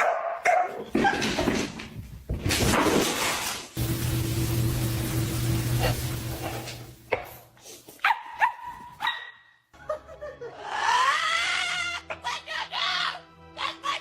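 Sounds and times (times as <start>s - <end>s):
dog barking: 0.0s - 1.2s, 8.0s - 9.6s
dog yipping: 8.0s - 9.6s.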